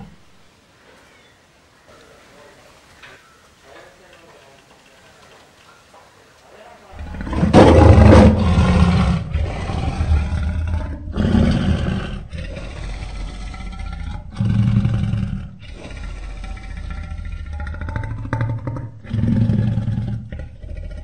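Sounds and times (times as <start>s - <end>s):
lion roaring: 7.0s - 21.0s.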